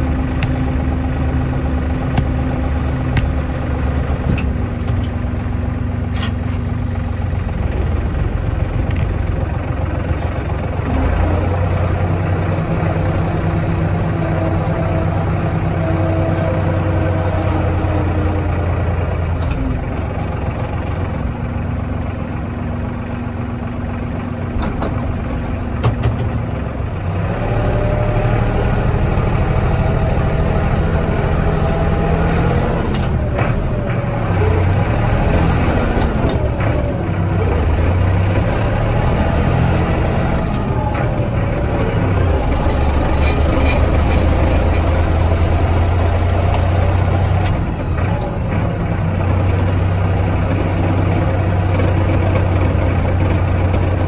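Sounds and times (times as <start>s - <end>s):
tractor diesel engine running: 0.0s - 54.0s
knocks and clanks: 2.0s - 6.7s, 24.5s - 54.0s.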